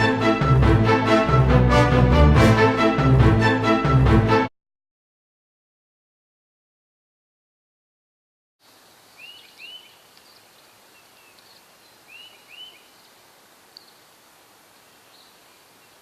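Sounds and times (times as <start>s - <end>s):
faint outdoor hiss: 8.6s - 16.0s
bird chirping: 9.1s - 14.1s, 14.7s - 16.0s.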